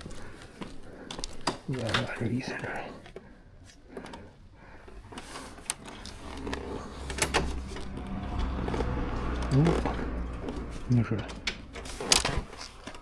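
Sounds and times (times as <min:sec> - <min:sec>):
low steady rumble: 0:05.8 - 0:13.0.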